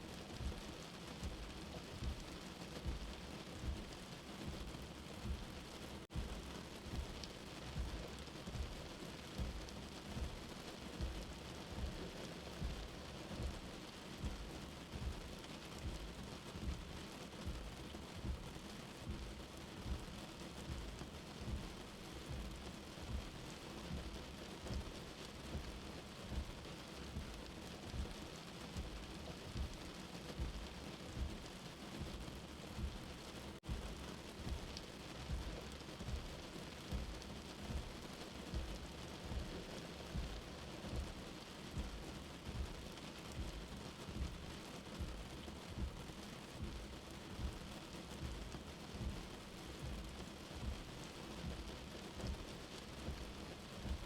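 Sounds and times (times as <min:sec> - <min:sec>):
steady rain: 0:00.0 - 0:54.0
heartbeat thumping: 0:00.3 - 0:54.0.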